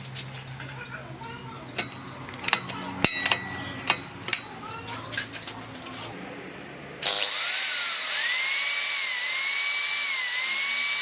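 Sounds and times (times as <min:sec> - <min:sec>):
electric drill whining: 0:07.0 - 0:11.0.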